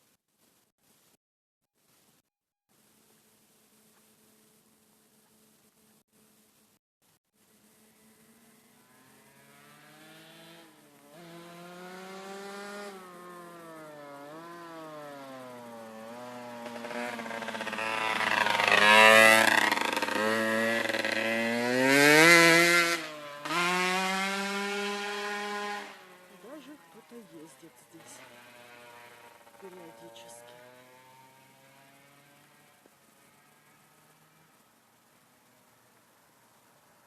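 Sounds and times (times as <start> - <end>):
vehicle engine driving past: 7.5 - 37.0.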